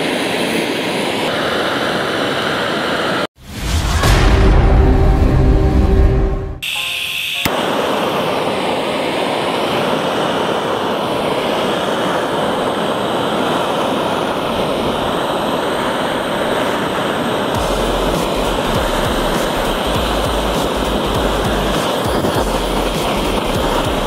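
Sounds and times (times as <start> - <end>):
blow torch flame hissing: 7.6 - 24.0.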